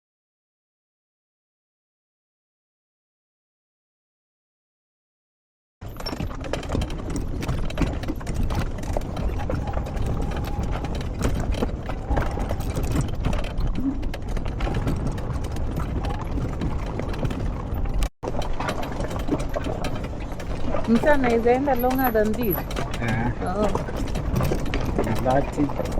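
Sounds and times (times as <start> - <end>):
horse hooves clip-clopping: 5.8 - 25.9.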